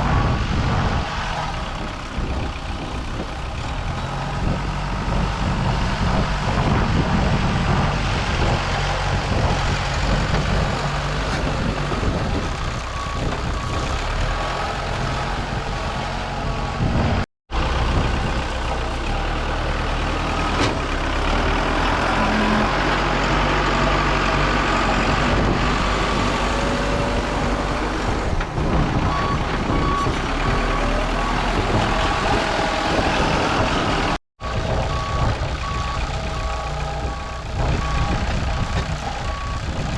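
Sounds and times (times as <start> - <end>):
diesel engine running: 0.0 - 39.9
reversing alarm beeping: 34.4 - 39.8.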